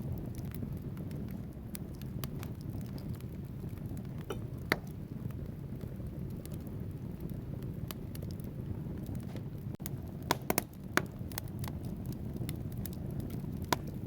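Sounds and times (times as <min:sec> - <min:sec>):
fire flames rumbling: 0:00.0 - 0:14.0
logs crackling and popping: 0:00.0 - 0:14.0.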